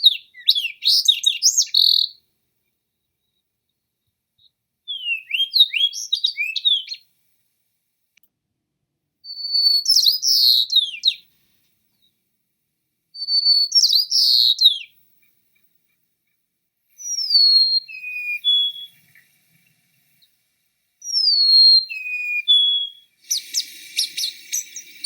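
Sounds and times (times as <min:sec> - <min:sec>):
songbird singing whistled notes: 0:00.0 - 0:02.2, 0:02.9 - 0:07.2, 0:09.2 - 0:11.3, 0:13.1 - 0:15.0, 0:16.9 - 0:19.2, 0:21.0 - 0:25.0.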